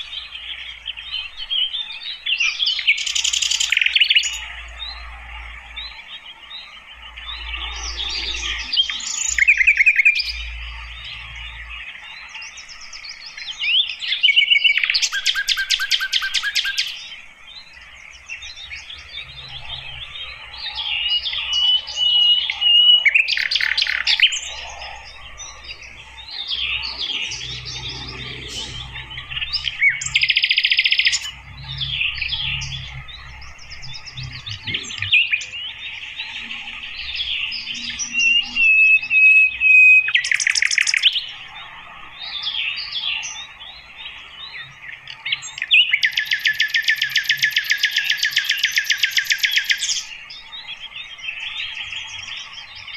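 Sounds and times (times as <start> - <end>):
wild birds singing: 0.0 - 52.9
clear bird whistle: 37.9 - 41.2, 45.6 - 50.0.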